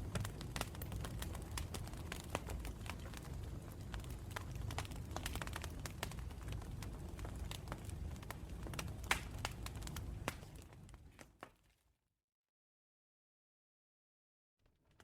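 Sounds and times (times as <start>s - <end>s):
low rumble of flames: 0.0s - 11.5s
campfire crackling and popping: 0.0s - 11.6s.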